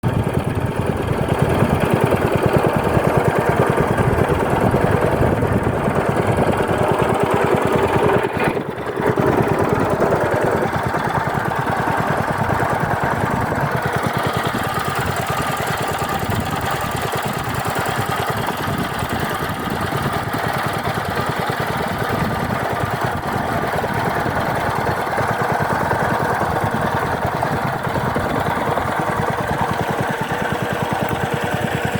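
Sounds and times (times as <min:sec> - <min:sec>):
small engine running: 0:00.0 - 0:31.9.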